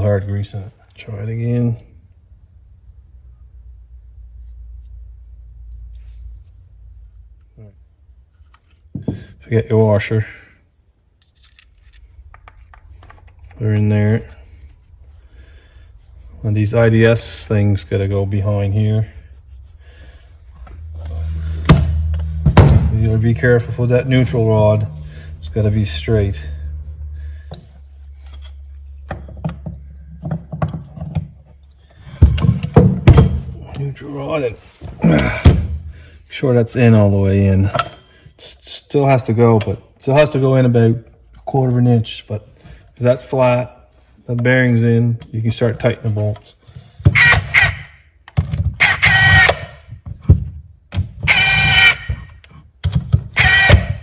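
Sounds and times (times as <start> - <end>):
steady low hum: 0.0 - 30.6
metal parts clicking and knocking: 37.7 - 38.1.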